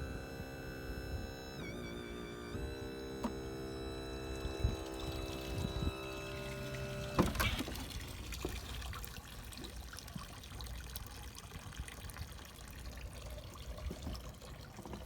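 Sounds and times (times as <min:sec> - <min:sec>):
electric tilt motor clunk: 0:00.0 - 0:08.7
water trickling and dripping: 0:03.4 - 0:15.0.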